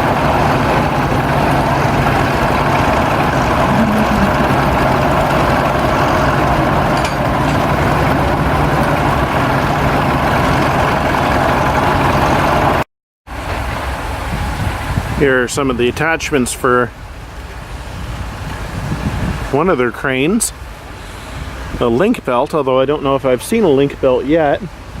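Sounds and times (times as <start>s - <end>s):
large engine idling: 0.0s - 17.9s.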